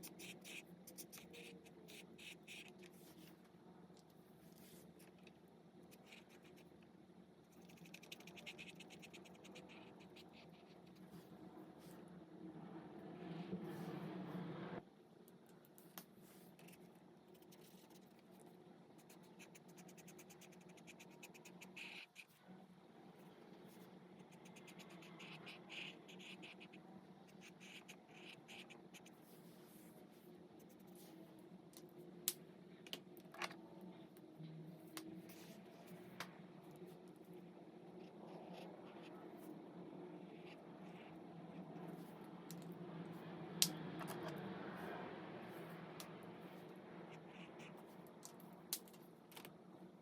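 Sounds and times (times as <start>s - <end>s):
marker scratching on paper: 0.0s - 3.2s, 24.2s - 29.4s.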